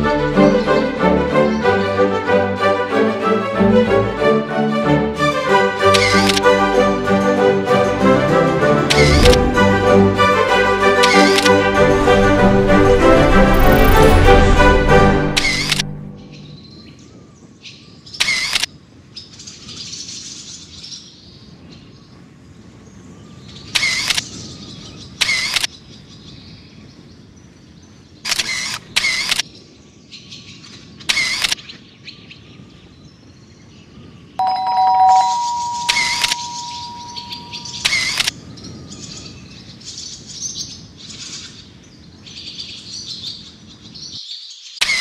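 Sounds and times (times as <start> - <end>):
steady two-note tone: 34.4 - 37.8
sharp bird calls: 35.5 - 45.0.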